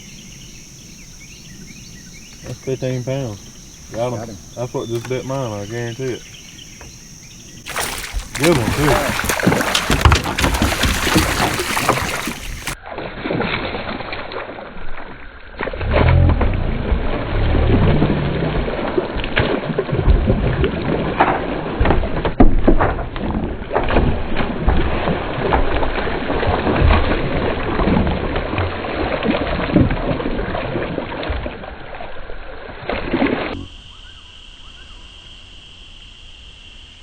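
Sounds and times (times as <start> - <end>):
high-pitched insect chorus: 0.0 - 12.8, 33.6 - 37.0
rough noise with knocks and rustles: 7.7 - 13.6.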